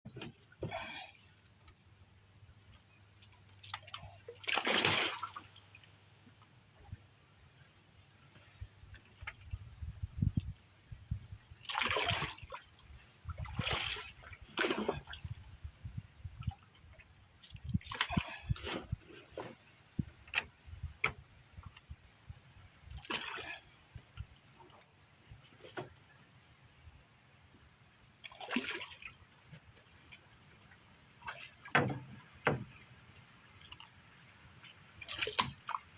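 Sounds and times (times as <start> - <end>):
water splashing and sloshing: 0.1 - 35.9
water splashing and dripping: 3.2 - 6.0, 11.6 - 15.5, 34.6 - 35.9.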